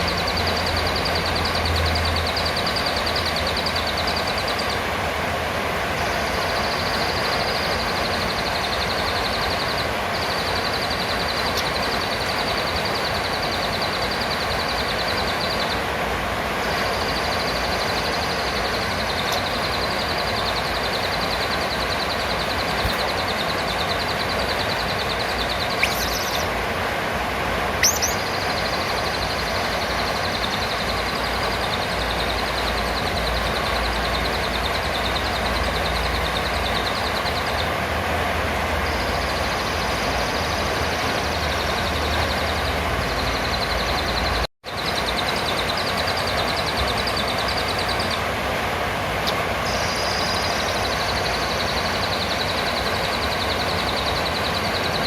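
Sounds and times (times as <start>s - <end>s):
high-pitched pulsing trill: 0.0s - 15.9s, 16.6s - 26.6s
constant hiss: 0.0s - 55.0s.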